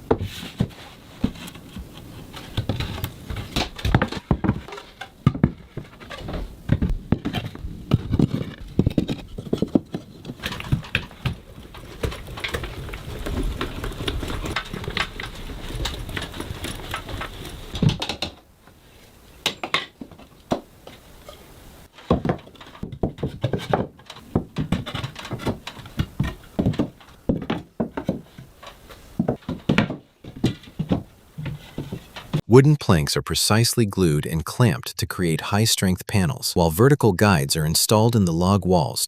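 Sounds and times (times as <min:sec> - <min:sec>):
knocks of tools and timber: 0:00.0 - 0:18.4, 0:19.4 - 0:21.0, 0:21.9 - 0:32.4
hand tools scraping wood: 0:00.0 - 0:32.4.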